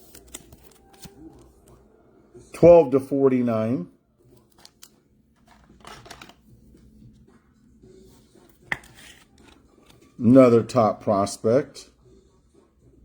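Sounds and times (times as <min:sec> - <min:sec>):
cards rustling and sliding: 0:00.0 - 0:01.4, 0:04.3 - 0:07.0, 0:08.1 - 0:10.2.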